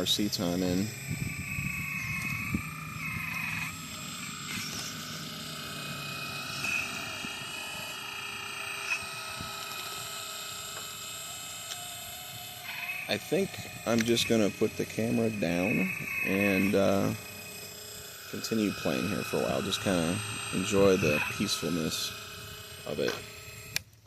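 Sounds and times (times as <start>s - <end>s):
small electric motors whining: 0.0s - 24.0s.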